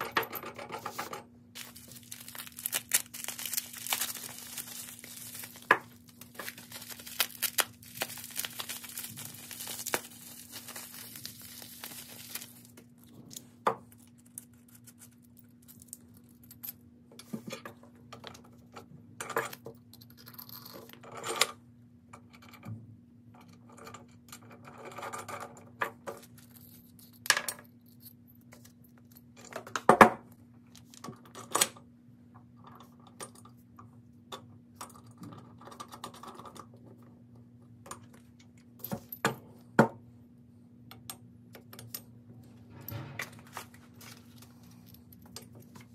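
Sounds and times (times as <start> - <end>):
faint steady hum: 0.0 - 45.9
metal parts clinking: 1.6 - 12.7
packaging crinkling and tearing: 1.6 - 12.9.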